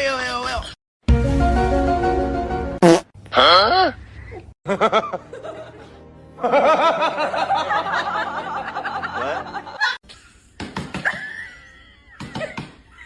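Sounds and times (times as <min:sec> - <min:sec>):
music: 0:01.0 - 0:02.8, 0:04.8 - 0:09.9.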